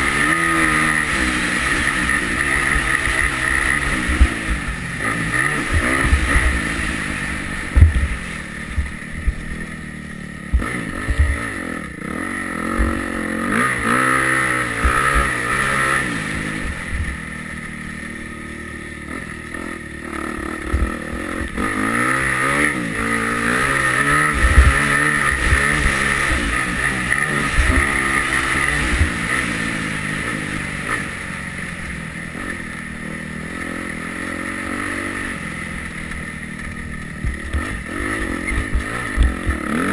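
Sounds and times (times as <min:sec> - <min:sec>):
motorcycle engine revving: 0:00.0 - 0:39.9
sharp low thumps: 0:05.4 - 0:09.7, 0:10.4 - 0:11.4, 0:24.0 - 0:26.8.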